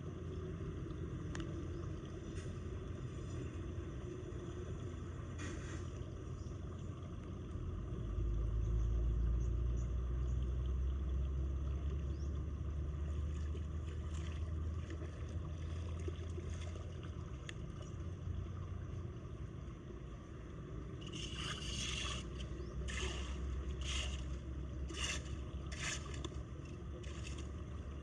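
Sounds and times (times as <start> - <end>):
water trickling and splashing: 9.9 - 19.8, 20.9 - 28.0.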